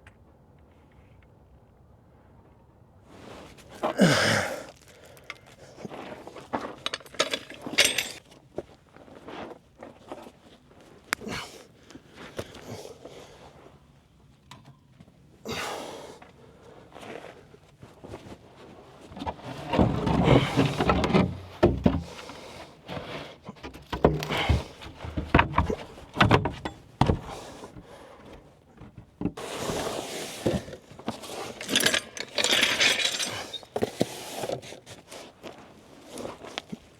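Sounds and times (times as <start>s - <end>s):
knocks scuffs and rustling: 3.1s - 15.4s, 16.2s - 36.9s
person crawling and clambering: 3.6s - 8.3s, 19.1s - 36.9s.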